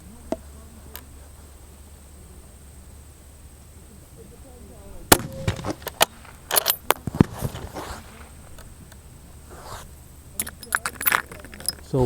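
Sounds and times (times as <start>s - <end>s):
handling noises: 4.9s - 12.0s.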